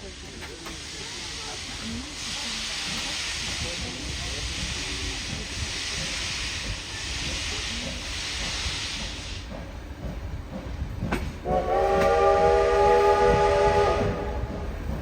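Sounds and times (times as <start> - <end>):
steam locomotive venting steam: 0.0 - 15.0
steam whistle blast: 11.4 - 14.5.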